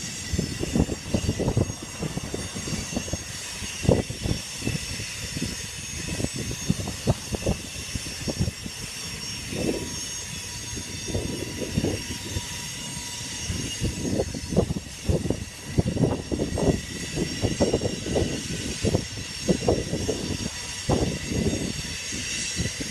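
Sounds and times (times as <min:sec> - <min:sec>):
high rail hiss: 0:00.0 - 0:22.9.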